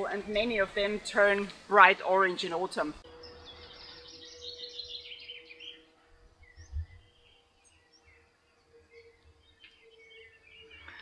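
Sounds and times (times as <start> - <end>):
outdoor background noise: 0.0 - 11.0
birds chirping and whistling: 3.0 - 11.0
wind gust on microphone: 6.5 - 7.2.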